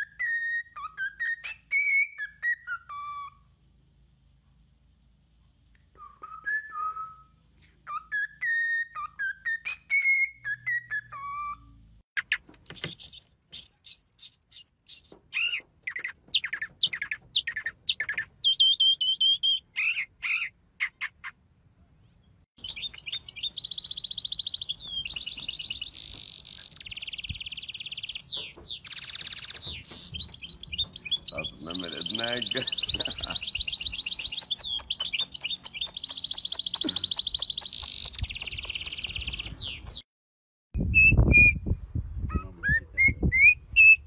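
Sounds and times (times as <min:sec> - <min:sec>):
cockatiel whistling a tune: 0:00.0 - 0:03.4, 0:06.0 - 0:11.8, 0:12.7 - 0:20.5, 0:22.6 - 0:31.3, 0:32.7 - 0:40.0, 0:40.8 - 0:41.7, 0:42.3 - 0:44.0
mockingbird chirping: 0:00.0 - 0:03.5, 0:07.8 - 0:40.0
songbird trilling and warbling: 0:12.2 - 0:21.4, 0:22.0 - 0:40.0.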